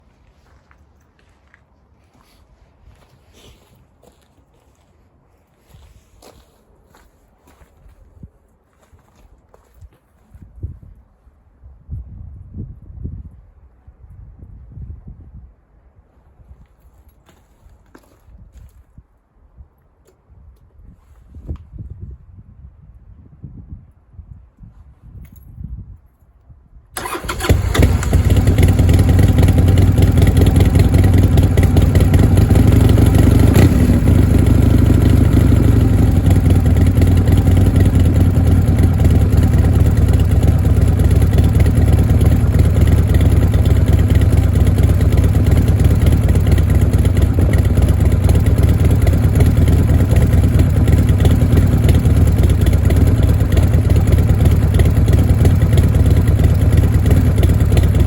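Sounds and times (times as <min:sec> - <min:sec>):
motorcycle engine starting and idling: 0:27.0 - 0:58.0.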